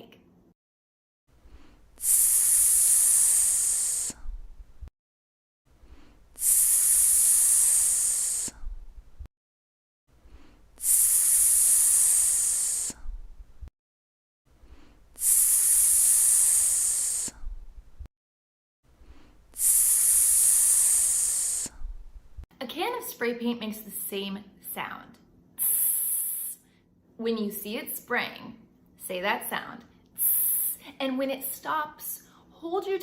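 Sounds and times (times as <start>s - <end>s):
sizzling hiss: 2.0s - 4.2s, 6.4s - 8.6s, 10.8s - 13.0s, 15.2s - 17.4s, 19.6s - 21.8s.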